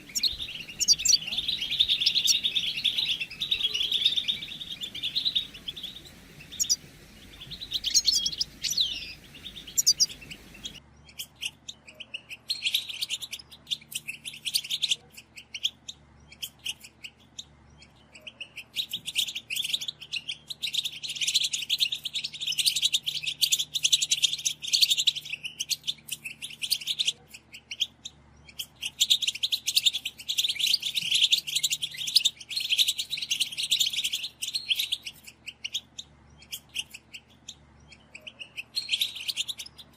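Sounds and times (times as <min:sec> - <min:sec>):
finches chirping: 0:00.0 - 0:11.2
chorus of many birds: 0:00.0 - 0:39.9.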